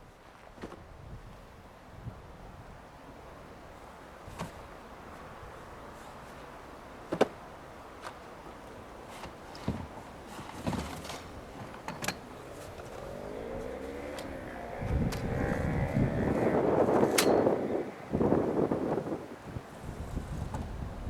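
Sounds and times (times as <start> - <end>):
vehicle engine revving: 11.1 - 19.6.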